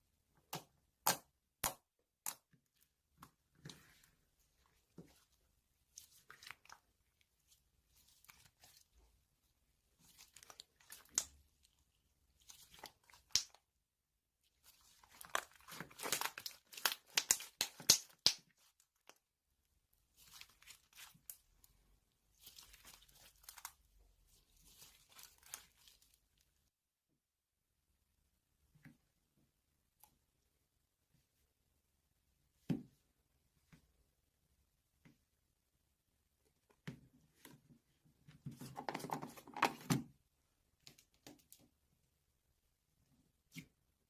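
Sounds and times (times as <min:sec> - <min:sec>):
crinkling and tearing handling noises: 0:14.6 - 0:19.2.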